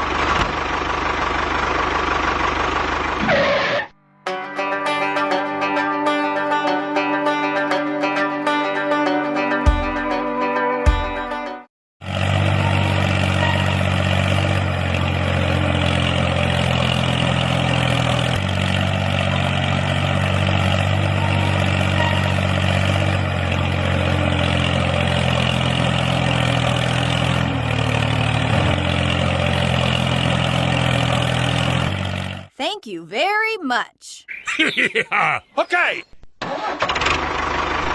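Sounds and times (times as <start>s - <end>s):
engine running steadily: 0.0s - 3.6s.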